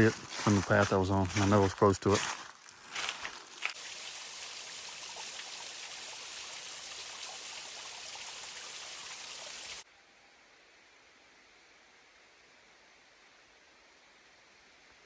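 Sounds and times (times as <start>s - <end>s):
stream water flowing: 0.0s - 9.8s.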